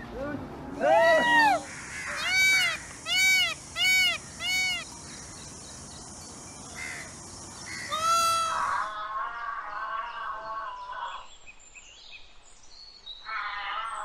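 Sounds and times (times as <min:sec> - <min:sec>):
peacock harsh calls: 0:00.9 - 0:05.4, 0:06.8 - 0:11.2
steady high hiss: 0:00.9 - 0:08.8.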